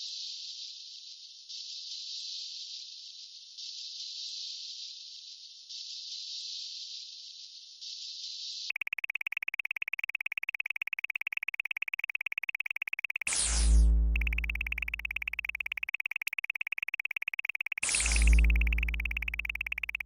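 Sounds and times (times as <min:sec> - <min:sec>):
high-pitched electronic beeps: 0:08.7 - 0:20.0.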